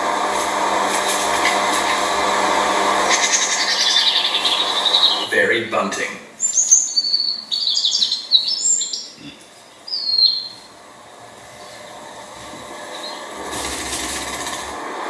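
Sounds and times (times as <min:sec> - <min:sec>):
bird singing high chirps: 0:03.5 - 0:05.3, 0:06.4 - 0:09.2, 0:09.8 - 0:10.7.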